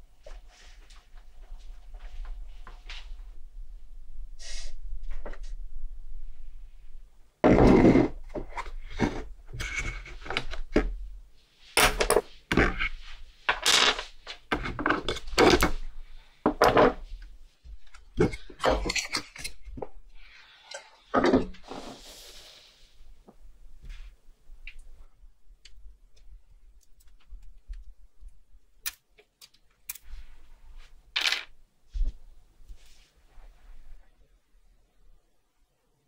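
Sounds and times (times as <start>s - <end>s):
scraping or brushing: 21.6s - 23.0s.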